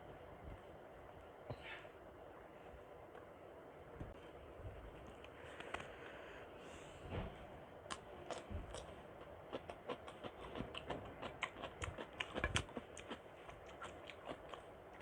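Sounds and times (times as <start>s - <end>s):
wet chewing sounds: 7.8s - 15.0s.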